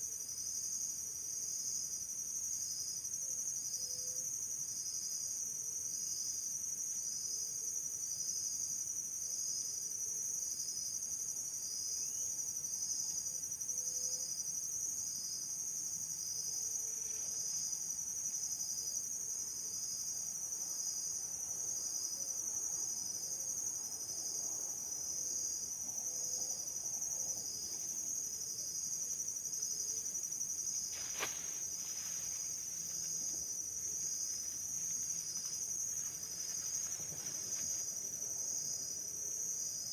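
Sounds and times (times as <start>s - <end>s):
insect chorus pulsing trill: 11.6s - 39.9s.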